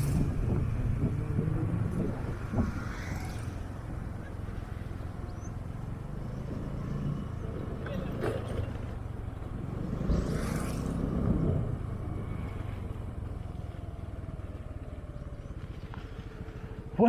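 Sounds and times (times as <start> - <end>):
wind noise on microphone: 0.0 - 4.1.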